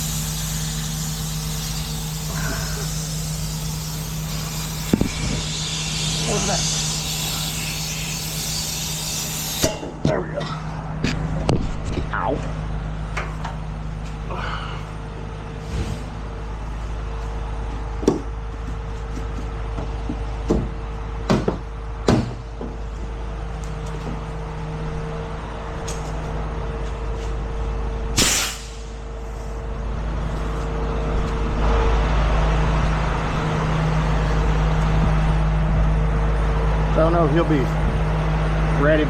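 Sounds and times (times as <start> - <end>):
air brake hiss: 0.0 - 9.7, 28.2 - 29.6
diesel engine idling: 0.0 - 11.5, 12.1 - 39.0.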